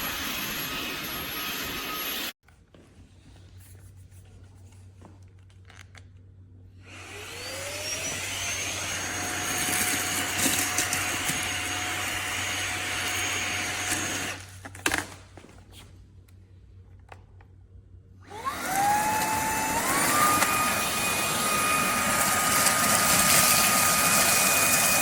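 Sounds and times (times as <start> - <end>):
handheld vacuum whining: 0.0 - 2.4, 6.8 - 14.5, 18.2 - 25.0.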